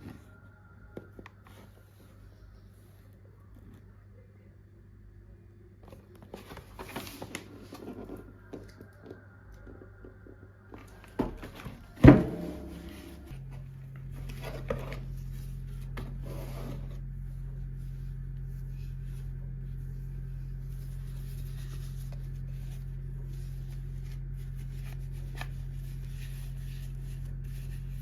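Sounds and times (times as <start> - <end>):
steady low hum: 9.4 - 28.0.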